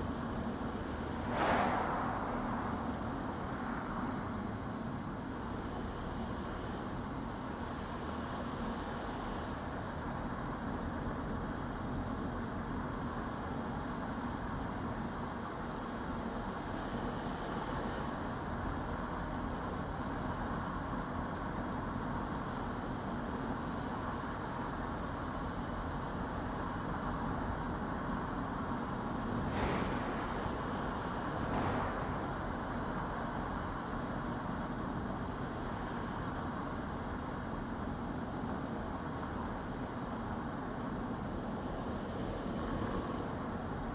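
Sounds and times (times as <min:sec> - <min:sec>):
car engine and tyre noise: 0:00.0 - 0:43.9.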